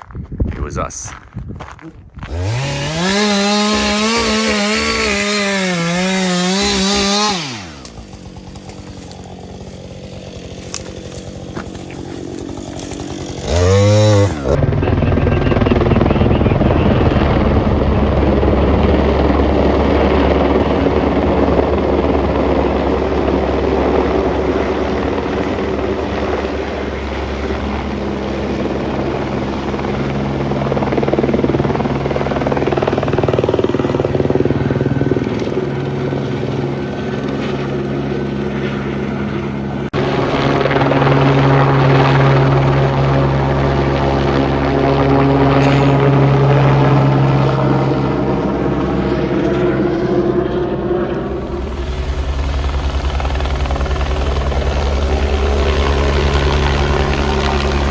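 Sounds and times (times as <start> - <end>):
helicopter rotor and engine: 2.3 - 57.9.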